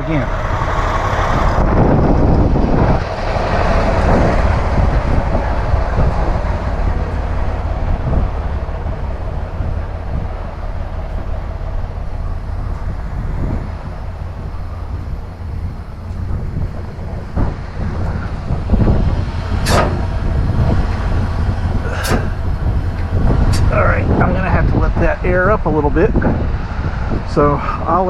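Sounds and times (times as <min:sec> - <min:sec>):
truck engine rumbling: 0:00.0 - 0:28.0
knocks: 0:18.8 - 0:21.0.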